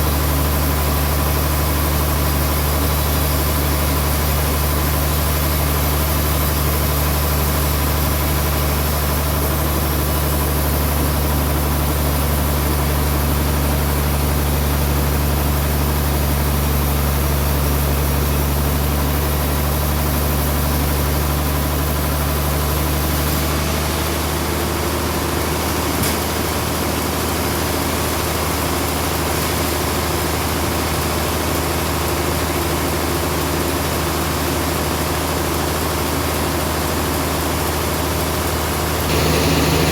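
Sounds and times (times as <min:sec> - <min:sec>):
band sawmill humming: 0:39.1 - 0:39.9
higher machine drone: 0:39.1 - 0:39.9.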